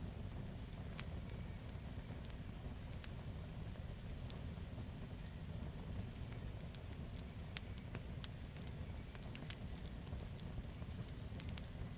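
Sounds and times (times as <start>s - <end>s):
campfire crackling and popping: 0.0s - 11.9s
low rumble of flames: 0.0s - 11.9s.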